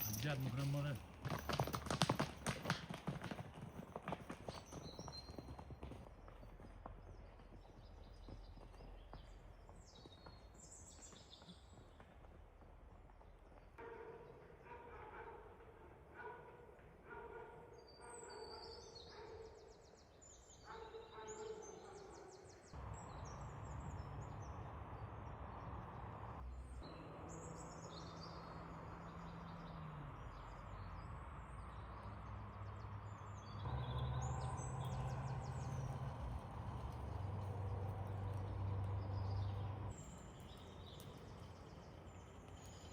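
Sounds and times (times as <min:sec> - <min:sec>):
birds chirping and trilling: 0:13.8 - 0:26.0, 0:26.6 - 0:42.9.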